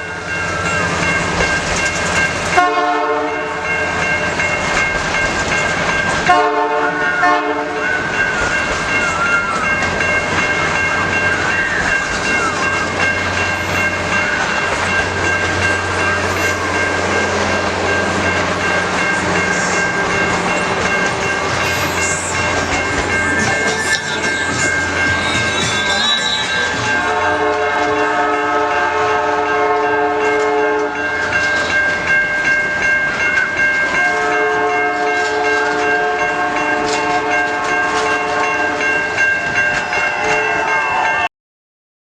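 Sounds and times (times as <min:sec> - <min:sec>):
passing train rumble: 0:00.0 - 0:41.3
locomotive horn blasts: 0:02.6 - 0:03.6, 0:06.3 - 0:08.1, 0:25.4 - 0:31.0, 0:34.0 - 0:38.8
steady high tones: 0:07.8 - 0:27.4.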